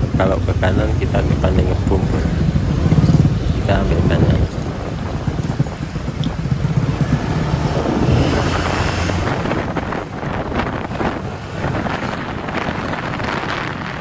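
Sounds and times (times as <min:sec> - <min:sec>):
vehicle engine and road noise: 0:00.0 - 0:14.0
wind buffeting microphone: 0:00.0 - 0:14.0.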